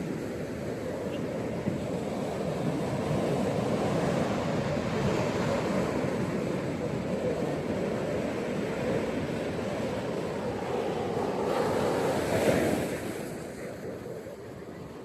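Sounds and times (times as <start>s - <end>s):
ocean waves washing on beach: 0.0s - 15.0s.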